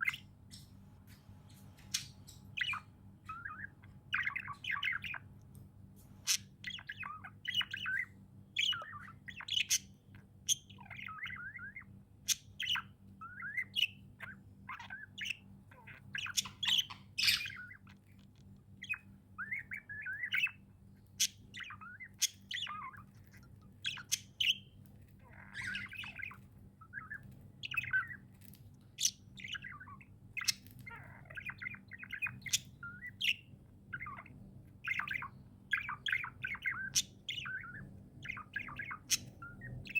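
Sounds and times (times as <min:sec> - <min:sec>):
birds squawking: 0:00.0 - 0:05.4, 0:06.2 - 0:39.9
budgerigars chirping and warbling: 0:00.0 - 0:39.9
faint low hum: 0:00.0 - 0:39.9.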